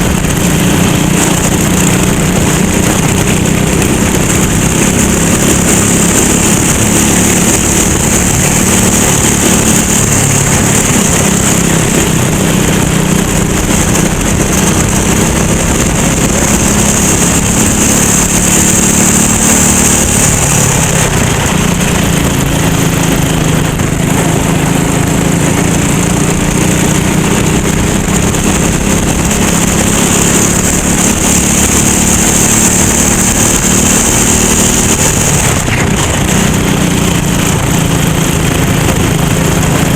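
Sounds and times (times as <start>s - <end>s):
go-kart engine: 0.0s - 39.9s.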